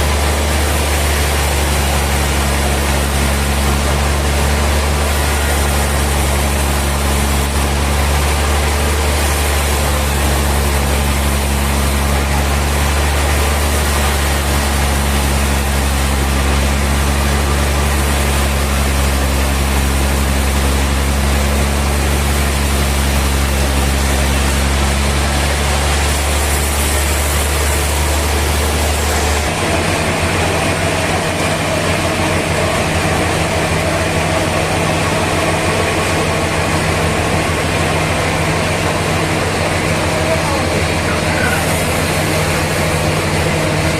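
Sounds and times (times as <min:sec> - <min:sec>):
heavy sawmill machinery hum: 0:00.0 - 0:43.9.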